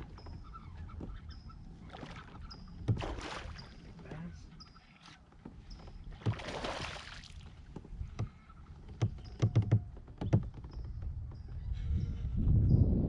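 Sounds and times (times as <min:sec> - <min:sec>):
knocks and thuds against hull: 0:02.8 - 0:03.6, 0:05.4 - 0:11.5.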